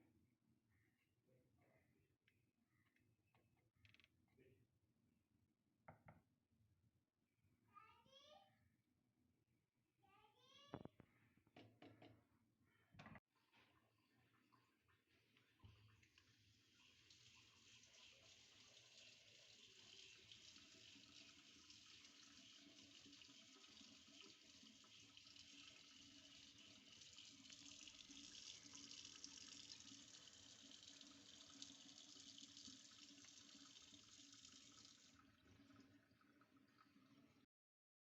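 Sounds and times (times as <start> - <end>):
water running from a tap: 15.7 - 37.5.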